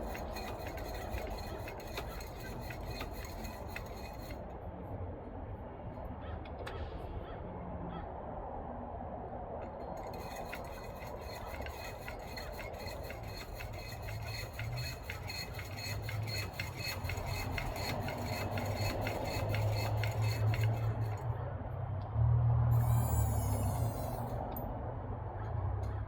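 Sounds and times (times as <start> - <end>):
rubbing creak of bushing: 0.0 - 4.4, 9.8 - 21.3, 22.8 - 24.6.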